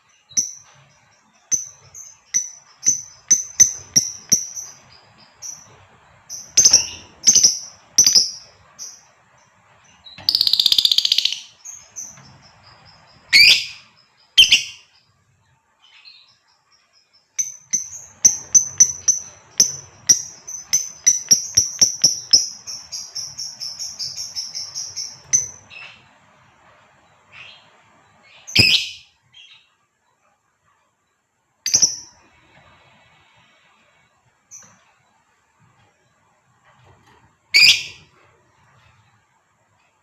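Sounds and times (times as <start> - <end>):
lovebird calling and chattering: 1.4 - 5.7, 6.3 - 9.0, 10.2 - 14.9, 17.4 - 26.1, 28.3 - 29.6, 37.6 - 38.0.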